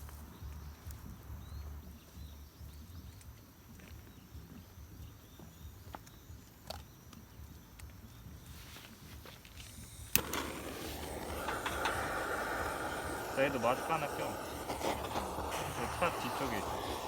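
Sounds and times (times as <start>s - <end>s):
sharp clicks: 9.8s - 17.0s.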